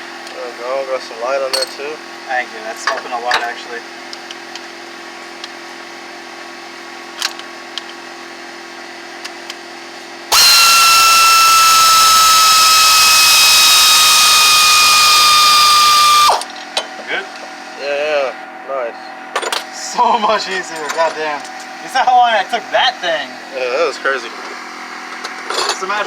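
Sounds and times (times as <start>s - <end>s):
power ratchet whining: 10.3s - 16.6s.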